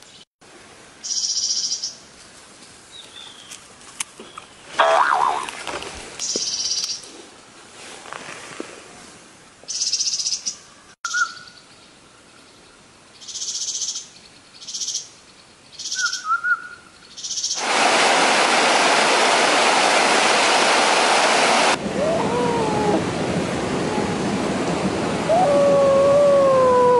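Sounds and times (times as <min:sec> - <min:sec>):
songbird trilling: 0:09.7 - 0:11.6, 0:15.7 - 0:17.6
rushing forest stream: 0:17.4 - 0:26.9.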